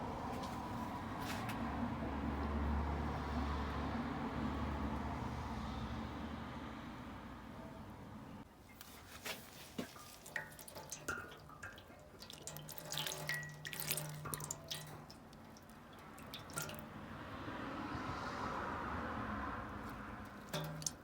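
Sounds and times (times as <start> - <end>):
liquid dripping and splashing: 9.3 - 17.4, 19.8 - 21.0
water trickling: 9.4 - 17.7, 19.8 - 21.0.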